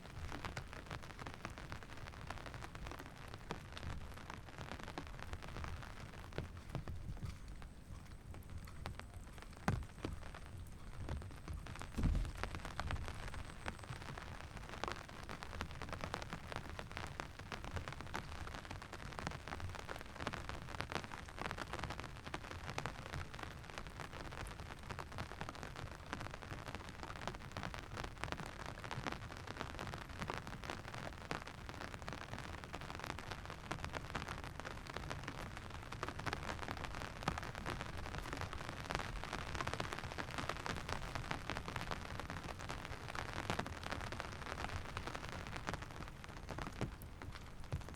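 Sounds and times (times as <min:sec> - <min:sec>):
rain falling: 0:00.0 - 0:47.9.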